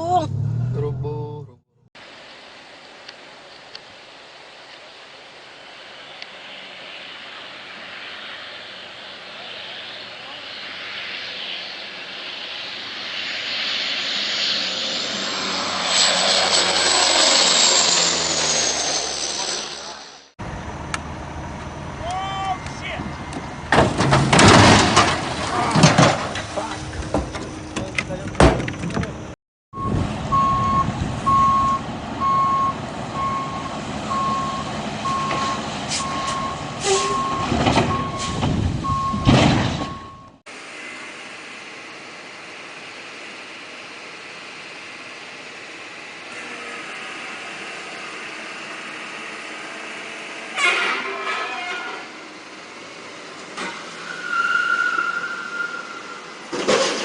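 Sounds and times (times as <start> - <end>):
engine rushing with rising whine: 0.0 - 24.1, 26.2 - 57.0
loud burst of noise: 4.0 - 22.7
knocks and clanks: 23.3 - 29.2, 37.4 - 40.1
reversing alarm beeping: 29.8 - 40.4.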